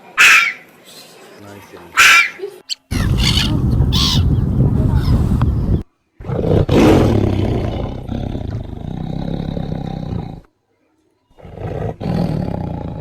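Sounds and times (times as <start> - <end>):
large animal roaring: 2.9 - 4.2, 6.2 - 10.4, 11.4 - 13.0.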